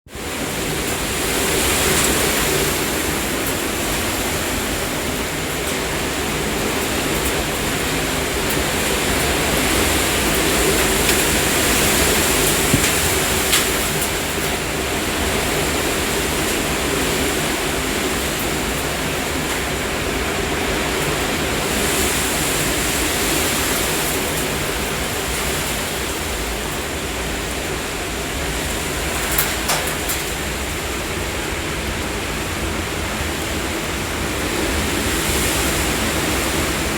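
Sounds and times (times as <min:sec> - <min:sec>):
wind buffeting microphone: 0:01.0 - 0:19.8
strong wind rushing: 0:09.4 - 0:14.5.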